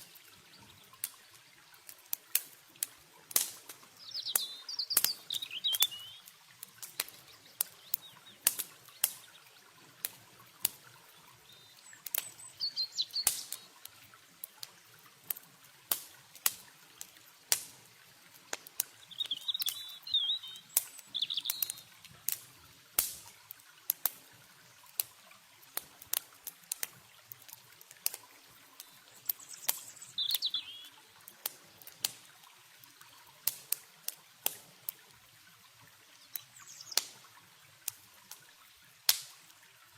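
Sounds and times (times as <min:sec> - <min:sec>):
campfire crackling and popping: 0:00.0 - 0:39.9
faint river water: 0:00.0 - 0:39.9
small birds chirping: 0:03.2 - 0:13.9, 0:18.5 - 0:22.0, 0:28.0 - 0:32.2, 0:36.1 - 0:37.4.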